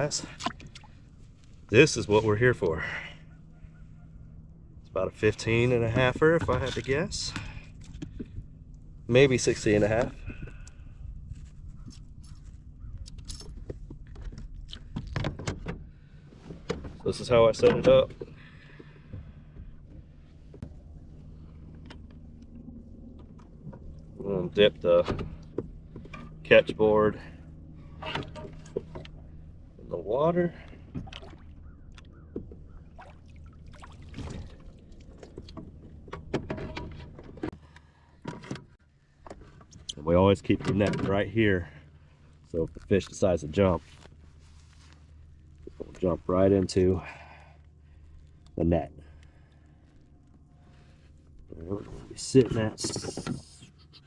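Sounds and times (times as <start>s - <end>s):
steady low rumble: 0.0s - 15.2s, 15.8s - 36.4s
water splashing and dripping: 31.0s - 32.1s, 32.9s - 35.6s.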